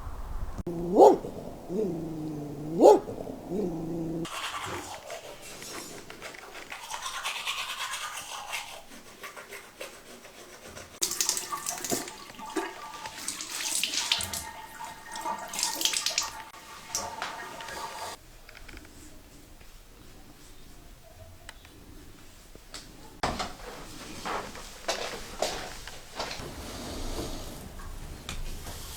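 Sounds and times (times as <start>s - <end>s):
bristle brush scrubbing: 4.2s - 11.0s.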